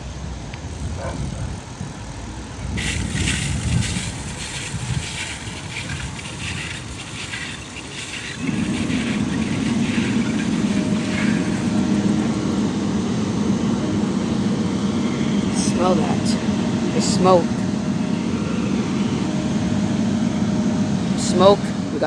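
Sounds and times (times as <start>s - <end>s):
low vehicle engine drone: 0.0s - 22.0s
outdoor rumble and hiss: 0.0s - 22.0s
wind on microphone: 0.2s - 12.8s.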